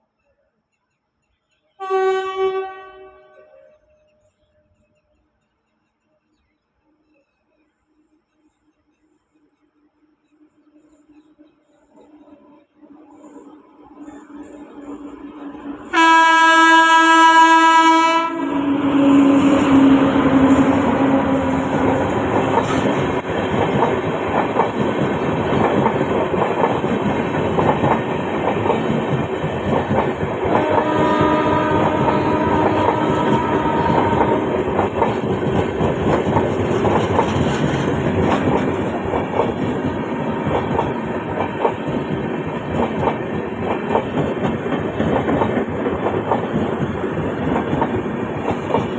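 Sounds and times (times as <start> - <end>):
train horn: 1.8 - 4.2, 15.8 - 23.1, 30.4 - 34.9
train wheels rumbling on rails: 7.6 - 48.9.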